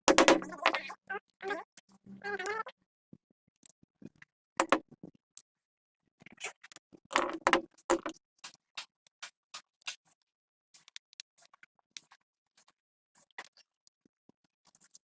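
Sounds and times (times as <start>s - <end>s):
sharp clicks and knocks: 0.0s - 0.8s, 4.6s - 4.8s.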